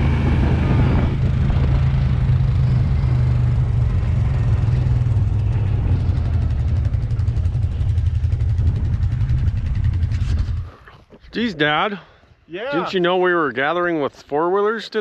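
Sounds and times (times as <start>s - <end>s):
four-wheeler engine running: 0.0s - 10.8s.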